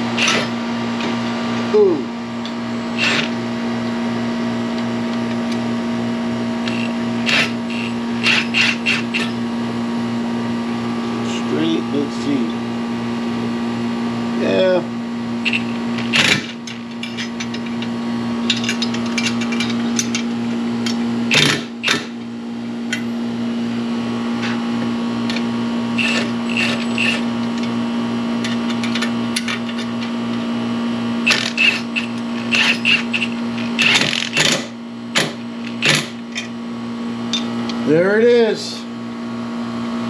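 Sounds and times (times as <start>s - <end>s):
machine humming with low pulse: 0.0s - 38.0s
tools and metal parts clicking: 0.2s - 1.1s, 6.6s - 9.4s, 15.4s - 22.2s, 25.2s - 27.8s, 28.4s - 30.2s, 31.2s - 36.5s.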